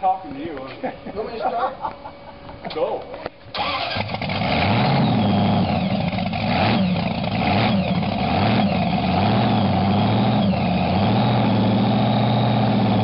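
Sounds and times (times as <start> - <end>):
car engine revving: 3.6 - 13.0.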